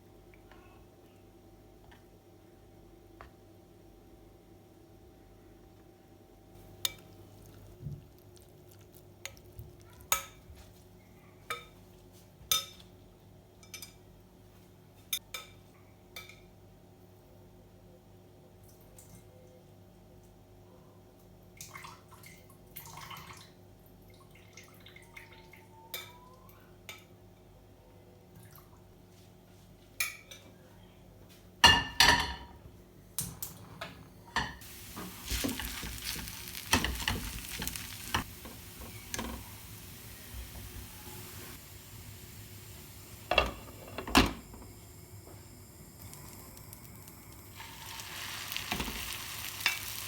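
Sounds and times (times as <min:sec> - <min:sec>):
steady hiss: 0:34.6 - 0:50.0.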